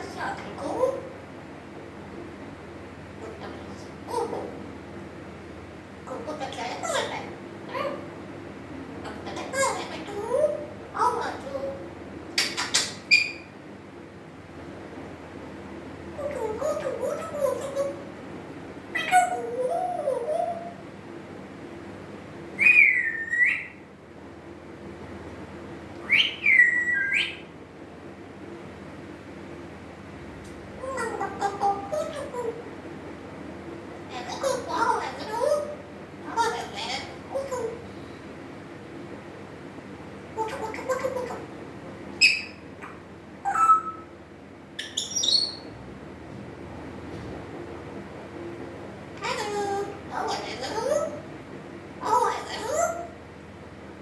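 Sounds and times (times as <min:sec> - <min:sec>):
parrot chattering and whistling: 0:12.4 - 0:13.5, 0:16.2 - 0:18.1, 0:18.9 - 0:20.8, 0:22.6 - 0:23.8, 0:26.0 - 0:27.5, 0:34.1 - 0:37.8, 0:40.4 - 0:41.5, 0:42.2 - 0:44.2, 0:44.8 - 0:45.7, 0:49.2 - 0:51.3, 0:52.0 - 0:53.2
parrot whistling: 0:12.5 - 0:13.5, 0:22.6 - 0:23.8, 0:26.0 - 0:27.5, 0:42.2 - 0:44.1, 0:44.8 - 0:45.7.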